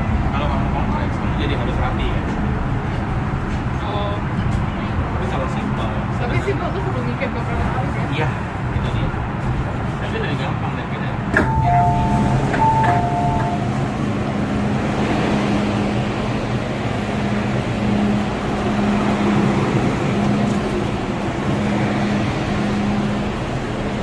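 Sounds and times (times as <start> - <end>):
electric train running hum: 0.0 - 24.0
two-note door warning chime: 11.4 - 13.8.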